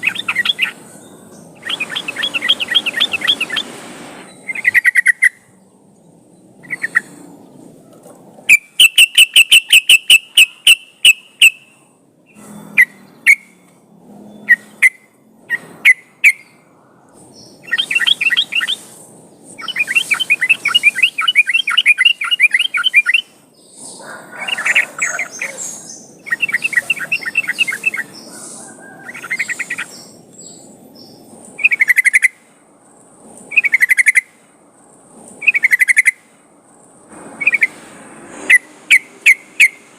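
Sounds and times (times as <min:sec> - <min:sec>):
bulbul chattering calls: 0:00.0 - 0:03.8, 0:04.4 - 0:05.5, 0:06.6 - 0:07.2, 0:17.4 - 0:19.0, 0:19.6 - 0:32.4, 0:33.5 - 0:34.3, 0:35.4 - 0:36.3.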